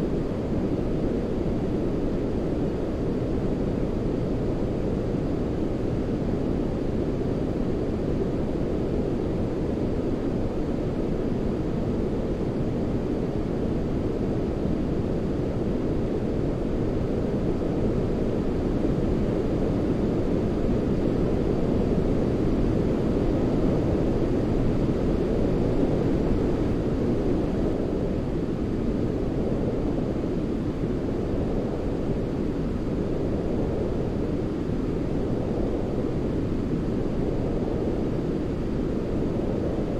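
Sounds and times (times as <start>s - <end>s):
brown noise low rush: 0.0s - 39.9s.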